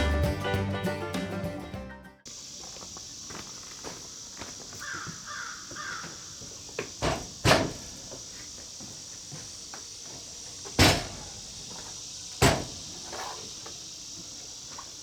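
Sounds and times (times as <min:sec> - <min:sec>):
high-pitched insect drone: 0:02.3 - 0:15.0
loud knocks: 0:07.0 - 0:08.0, 0:10.8 - 0:11.3, 0:12.4 - 0:12.8.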